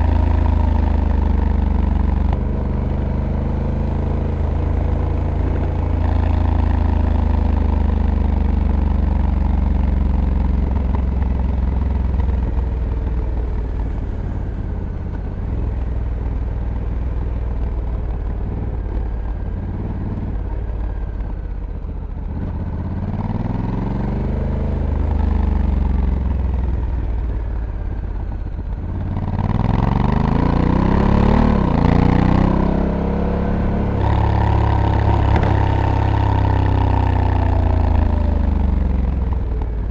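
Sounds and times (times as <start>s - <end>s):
motorcycle engine revving: 28.6s - 39.9s.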